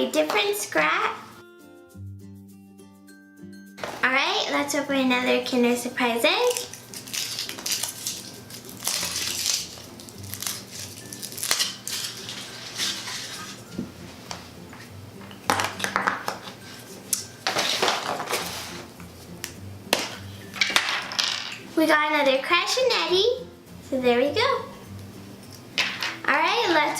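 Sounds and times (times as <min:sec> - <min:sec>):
chocolate shell cracking: 0:06.4 - 0:12.4
foil wrapper crinkling: 0:06.4 - 0:13.6.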